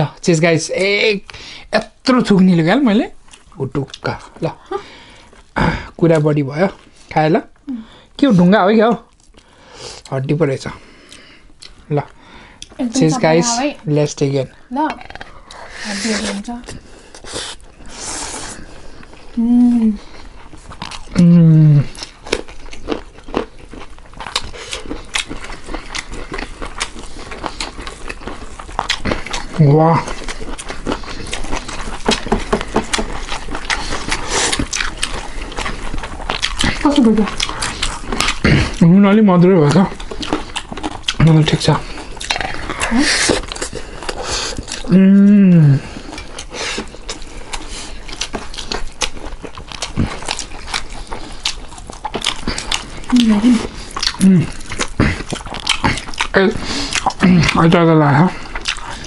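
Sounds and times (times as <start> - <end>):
wet chewing and mouth smacks: 9.0 - 10.2, 11.0 - 12.8, 14.9 - 19.4, 20.0 - 21.2, 21.8 - 44.9, 45.8 - 59.0.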